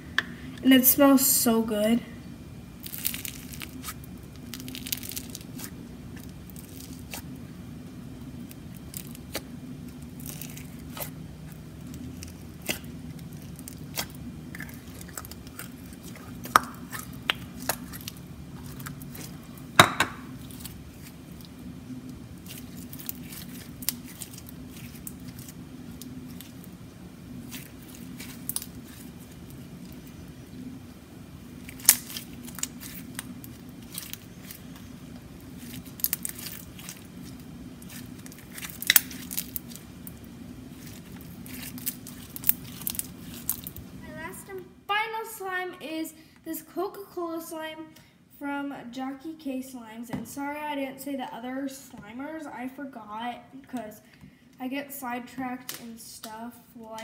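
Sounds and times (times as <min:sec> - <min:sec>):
faint steady hum: 0:00.0 - 0:57.0
slime popping: 0:31.6 - 0:34.8, 0:35.4 - 0:39.9
slime squishing and clicking: 0:35.6 - 0:39.8.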